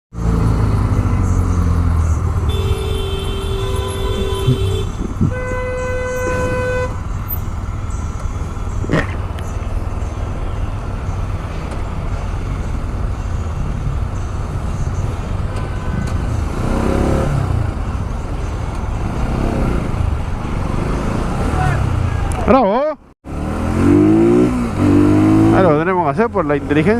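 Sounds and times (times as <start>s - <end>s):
traffic rumble: 0.1s - 26.9s
motorcycle engine rumble: 0.2s - 22.8s
car horn blast: 2.4s - 7.1s, 15.5s - 16.4s
higher-pitched car horn: 2.4s - 7.2s, 15.4s - 16.4s
engine revving: 16.1s - 17.9s, 19.0s - 22.4s, 23.2s - 26.9s.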